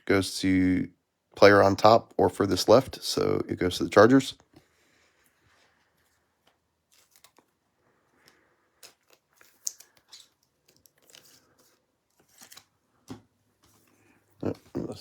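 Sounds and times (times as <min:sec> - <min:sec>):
plastic wrapper crinkling and tearing: 0:06.8 - 0:07.6, 0:08.8 - 0:12.8.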